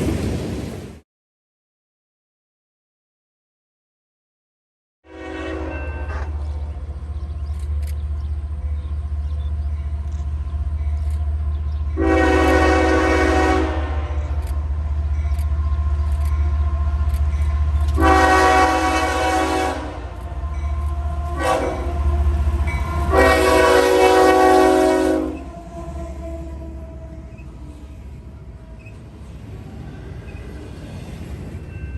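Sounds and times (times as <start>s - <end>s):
train air horn: 5.0s - 6.6s, 12.0s - 14.5s, 17.9s - 29.3s
diesel locomotive rumbling: 5.1s - 31.9s.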